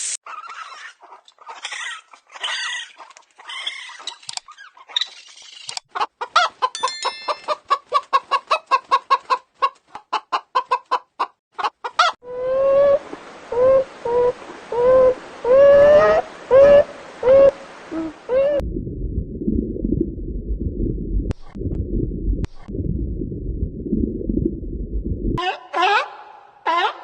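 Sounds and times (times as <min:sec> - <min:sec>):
chickens squawking: 0:00.3 - 0:05.1, 0:05.9 - 0:13.0, 0:25.4 - 0:27.0.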